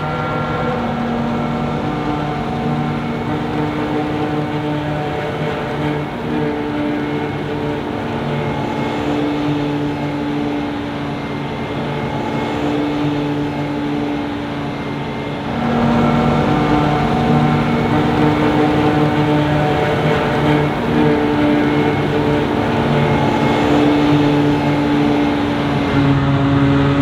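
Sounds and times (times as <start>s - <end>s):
heavy farm machinery engines: 0.0s - 27.0s.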